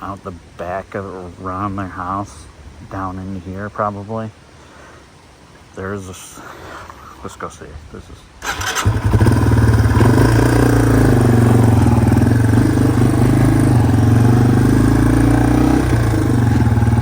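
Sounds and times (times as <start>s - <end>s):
motorcycle engine running steadily: 8.5s - 17.0s.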